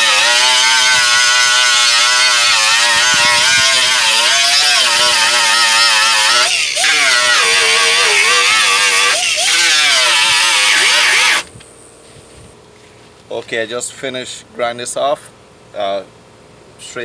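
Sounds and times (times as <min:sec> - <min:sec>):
angle grinder grinding metal: 0:00.0 - 0:11.5.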